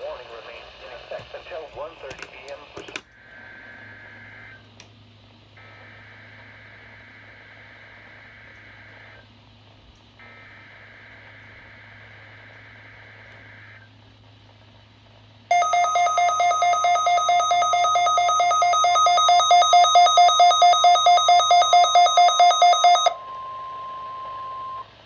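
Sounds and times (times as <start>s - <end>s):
faint warbling data tone: 15.5s - 25.0s
harsh electronic alarm beeping: 15.5s - 25.0s.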